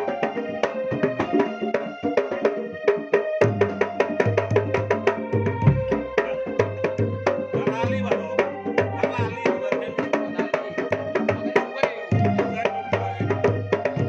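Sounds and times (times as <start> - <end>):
wavering melody: 0.0 - 14.0
hand drum strokes: 3.6 - 14.0
steady pitched tones: 5.5 - 14.0
bass drum booms: 5.6 - 7.2, 12.1 - 13.4.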